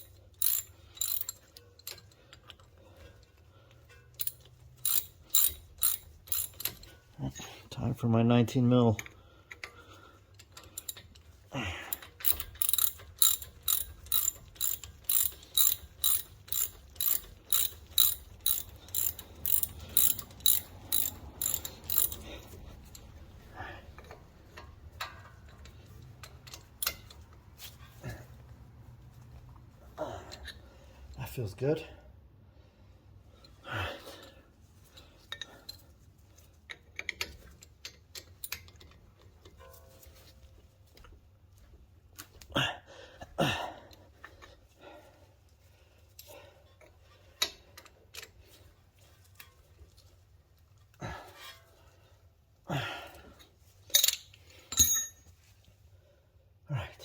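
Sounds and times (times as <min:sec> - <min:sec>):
socket ratchet clicking: 0:00.0 - 0:02.1, 0:04.2 - 0:06.8, 0:12.2 - 0:22.2.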